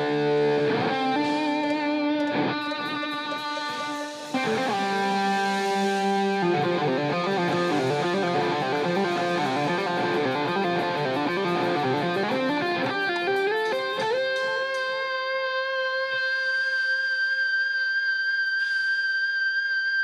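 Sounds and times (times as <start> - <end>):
amplified plucked-string solo: 0.0 - 18.0.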